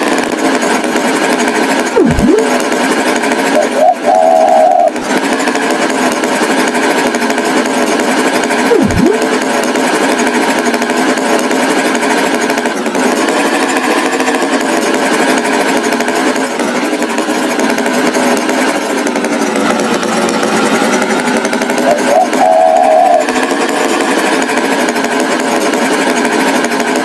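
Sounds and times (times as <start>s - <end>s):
swooping tone: 2.0s - 2.7s, 8.7s - 9.4s
loud mechanical buzzing: 2.0s - 3.3s.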